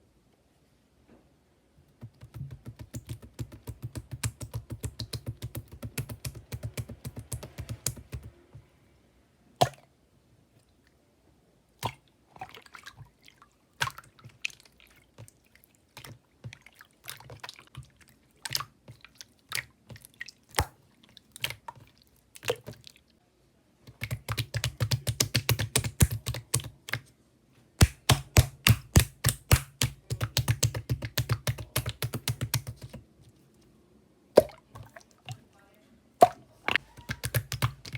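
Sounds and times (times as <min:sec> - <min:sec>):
slime clicking and popping: 0:02.1 - 0:08.3, 0:23.9 - 0:27.0, 0:27.8 - 0:32.9, 0:37.0 - 0:37.9.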